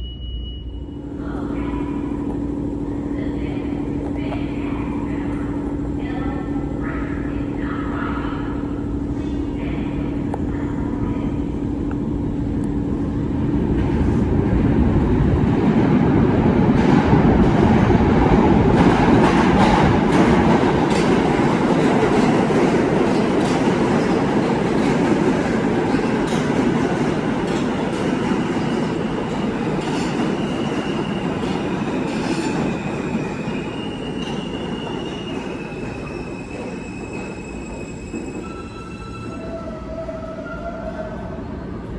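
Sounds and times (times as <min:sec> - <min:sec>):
subway train running: 0:00.0 - 0:41.9
train wheel squeal: 0:29.8 - 0:41.3.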